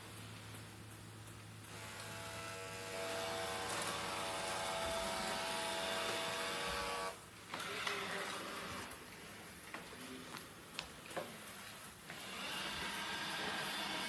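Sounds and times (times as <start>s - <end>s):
robot vacuum motor whining: 1.7s - 9.0s, 12.1s - 14.0s.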